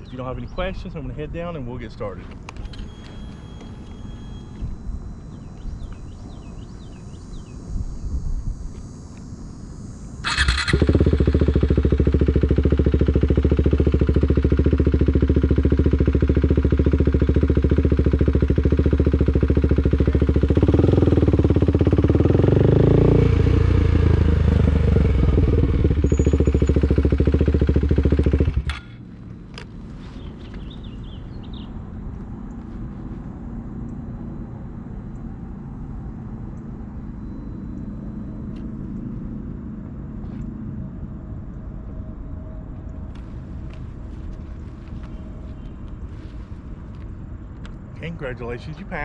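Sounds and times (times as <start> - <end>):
motorcycle engine running: 8.5 - 40.7, 43.1 - 49.0.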